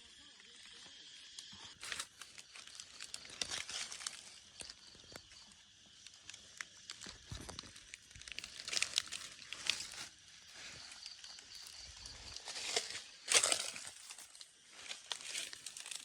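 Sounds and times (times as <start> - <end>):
dry vegetation rustling: 7.4 - 16.0.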